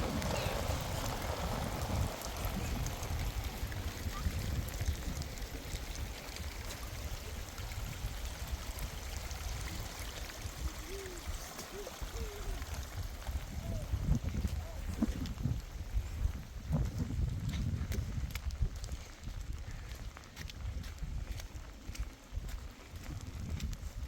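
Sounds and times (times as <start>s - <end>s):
heavy rain falling: 0.0s - 15.7s
rainwater trickling: 0.0s - 19.2s.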